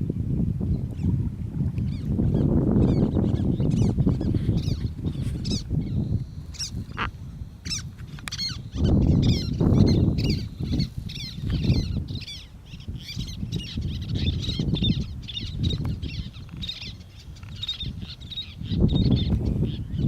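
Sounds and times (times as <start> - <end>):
wind buffeting microphone: 0.0 - 20.0
birds chirping: 1.8 - 20.0.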